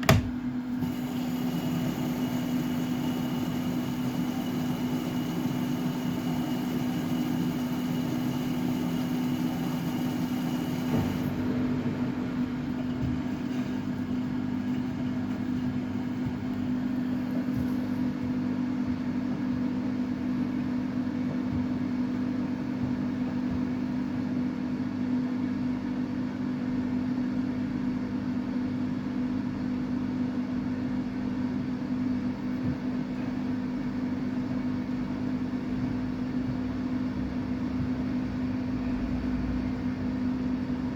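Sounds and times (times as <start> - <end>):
washing machine motor hum: 0.0 - 40.9.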